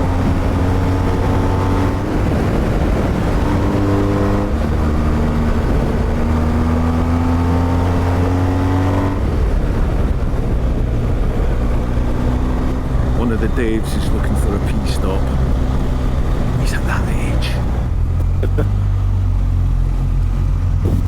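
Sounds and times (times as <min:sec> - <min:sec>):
motorcycle engine running: 0:17.5 - 0:21.0.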